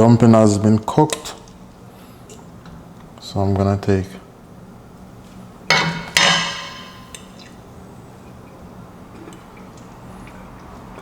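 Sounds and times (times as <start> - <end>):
metal cookware clanking: 5.7 - 7.4.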